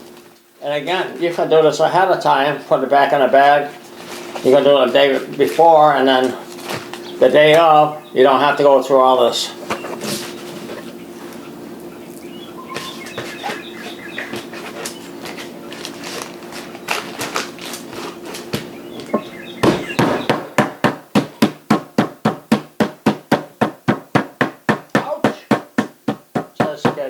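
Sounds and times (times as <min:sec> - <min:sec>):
steady low hum: 0:00.0 - 0:21.2
meat mallet pounding on board: 0:18.6 - 0:27.0.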